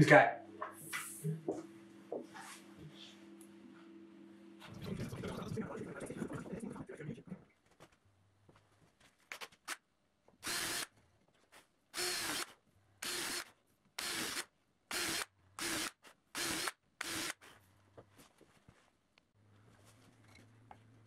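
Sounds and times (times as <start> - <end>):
power drill driving screws: 10.4 - 10.9, 12.0 - 17.4.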